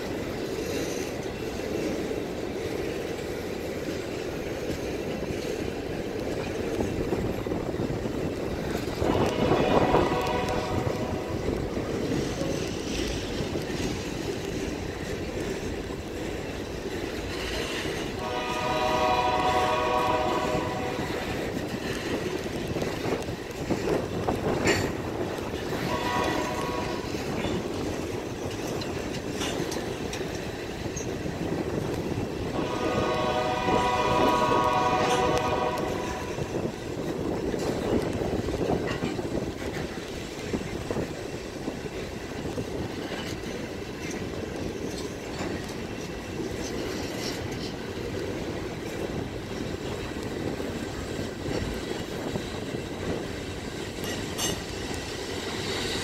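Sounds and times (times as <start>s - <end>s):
freight train rumbling past: 0.0s - 56.0s
train horn: 8.8s - 12.8s, 17.6s - 23.2s, 24.4s - 27.6s, 32.4s - 36.9s.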